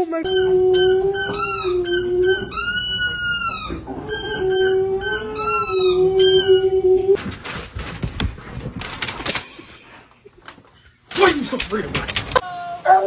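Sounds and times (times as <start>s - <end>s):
dog howling: 0.2s - 7.2s
steady held tone: 0.2s - 7.2s.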